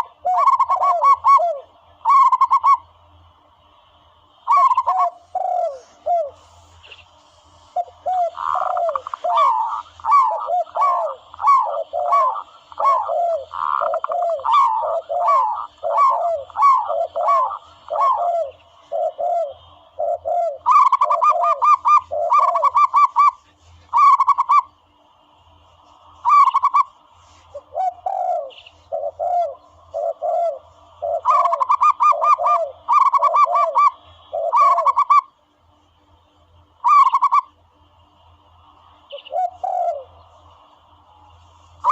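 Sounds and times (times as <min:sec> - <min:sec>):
dove cooing: 0:00.0 - 0:02.8, 0:04.4 - 0:06.8, 0:07.6 - 0:24.7, 0:26.2 - 0:26.9, 0:27.5 - 0:35.3, 0:36.8 - 0:37.5, 0:39.1 - 0:40.4.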